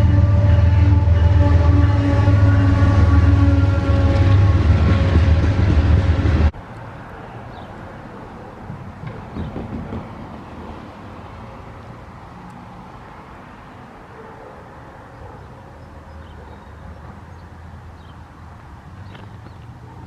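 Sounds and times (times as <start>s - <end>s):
train rumbling by: 0.0s - 12.2s
train knocks: 8.7s - 10.8s.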